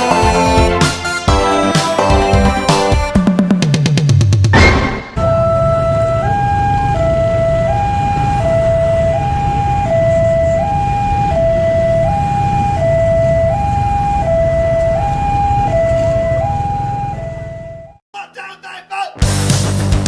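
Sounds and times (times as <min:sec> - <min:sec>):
two-tone crossing alarm: 0:04.6 - 0:18.0.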